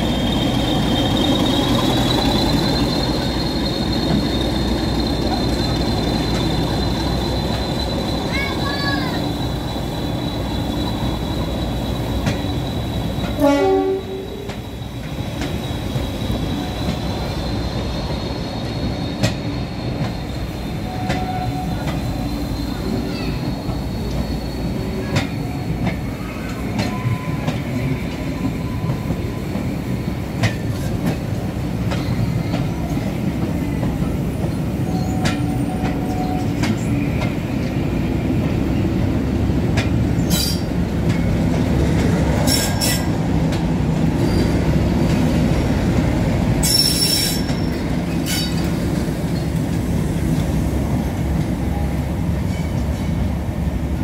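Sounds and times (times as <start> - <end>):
wheels squealing: 0.0 - 37.2, 46.5 - 49.7
diesel locomotive engine rumble: 0.0 - 54.0.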